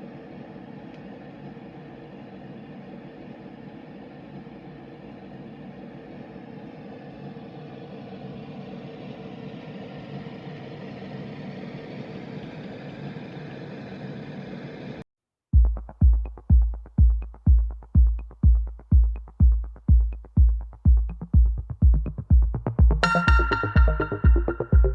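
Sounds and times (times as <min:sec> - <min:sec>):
deep thumping beat: 0:15.6 - 0:24.9
melody of ringing tones: 0:23.0 - 0:24.9.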